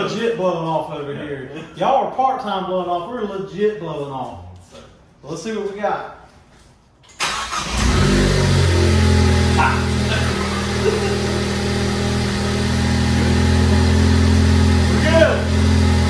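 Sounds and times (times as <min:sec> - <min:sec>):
car engine starting and idling: 0:07.1 - 0:16.0.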